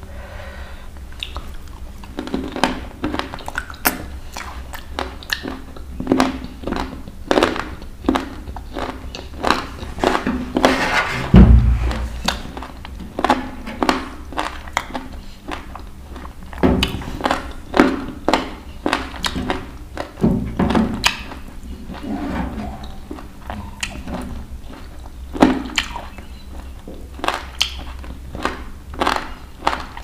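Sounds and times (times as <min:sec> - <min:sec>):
chewing and wet mouth sounds: 0:01.0 - 0:10.7, 0:12.2 - 0:22.1, 0:22.8 - 0:30.0
heavy low thud: 0:11.1 - 0:12.6.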